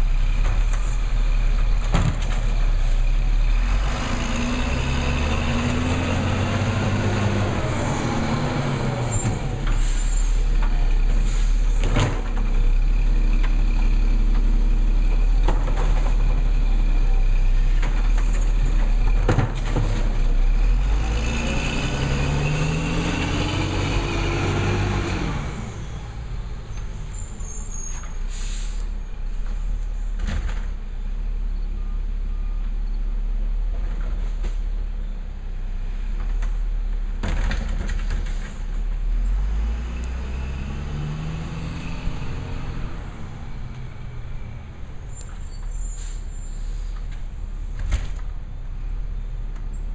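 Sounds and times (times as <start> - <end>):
garbage truck engine revving: 3.4 - 10.4, 18.7 - 26.3, 39.1 - 44.7
air brake hisses: 9.6 - 10.4, 11.2 - 11.8, 27.6 - 29.5, 45.8 - 47.0.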